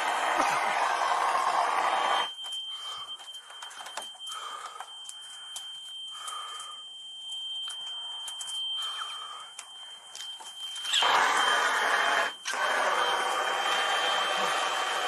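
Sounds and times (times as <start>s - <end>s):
smoke alarm tone: 0.0s - 15.0s
scuffs and clicks of movement: 2.4s - 11.0s.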